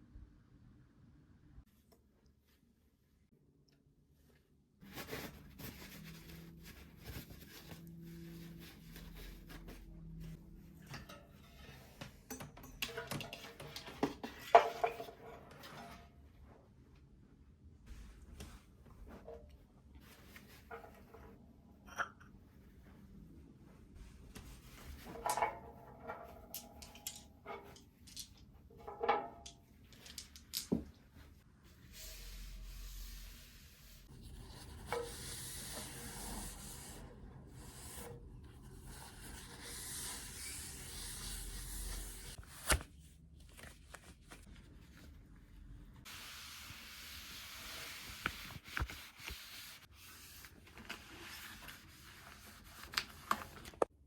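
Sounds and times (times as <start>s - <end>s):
objects clinking and knocking: 25.1s - 31.0s.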